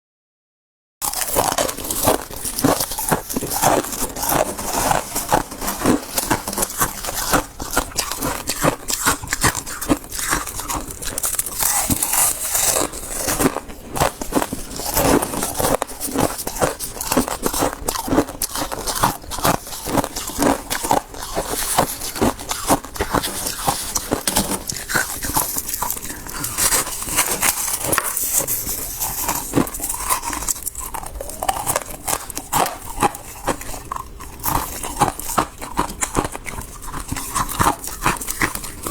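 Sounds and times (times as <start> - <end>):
crunching and chewing frost: 1.0 - 38.9.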